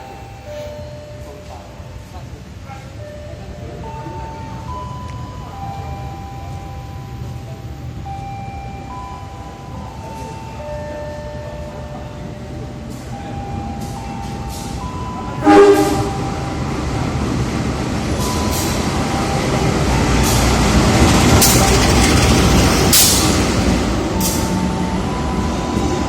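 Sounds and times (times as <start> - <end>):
train running noise: 0.0 - 26.0
train horn blast: 15.4 - 16.4.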